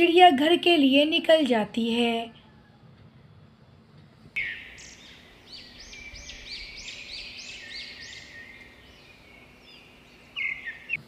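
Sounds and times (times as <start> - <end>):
songbird chirping: 4.4 - 11.0.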